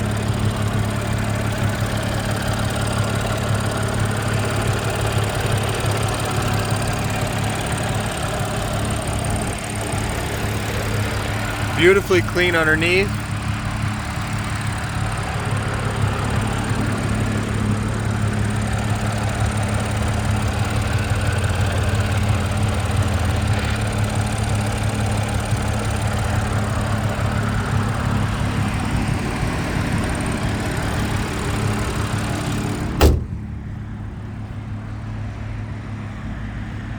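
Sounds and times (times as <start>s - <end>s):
car engine idling: 0.0s - 36.0s
loud thump: 33.0s - 33.7s.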